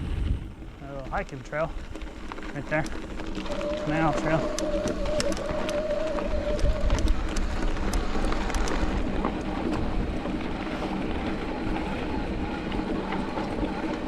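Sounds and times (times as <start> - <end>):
bike tyres on dirt trail: 0.0 - 14.0.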